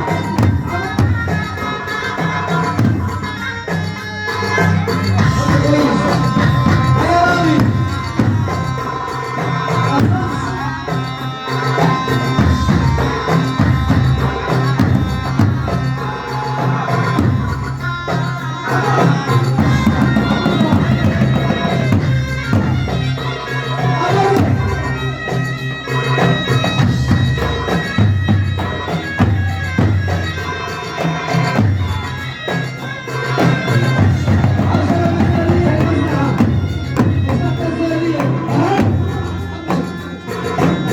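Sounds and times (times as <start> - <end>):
drums and percussion: 0.0 - 40.9
reedy wind instrument melody: 0.0 - 40.9.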